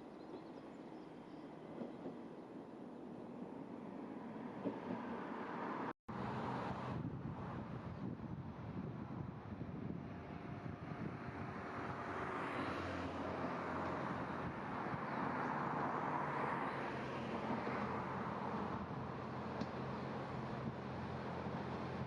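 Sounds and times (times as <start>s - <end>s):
railcar engine hum: 0.0s - 22.0s
train wheel and rail noise: 0.3s - 6.5s, 13.2s - 22.0s.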